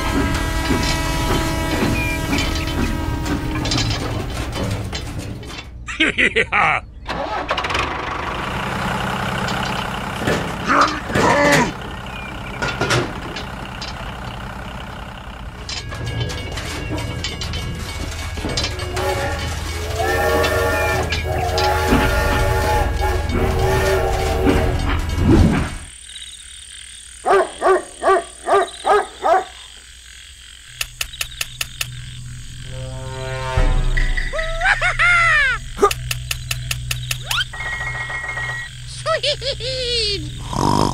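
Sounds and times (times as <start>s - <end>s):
tractor engine running: 0.0s - 26.1s, 30.6s - 40.9s
frog croaking: 25.9s - 33.5s, 35.3s - 40.9s
sharp clicks: 30.7s - 32.2s, 35.7s - 38.8s.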